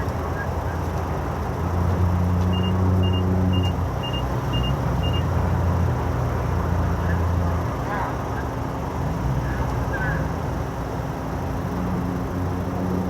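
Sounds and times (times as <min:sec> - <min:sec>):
vehicle engine humming: 0:00.0 - 0:13.0
reversing alarm beeping: 0:02.5 - 0:05.3.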